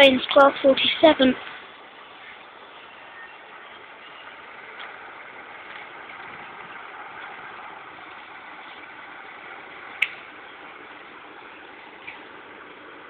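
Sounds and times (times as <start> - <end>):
diesel locomotive engine idling: 0.0 - 13.0.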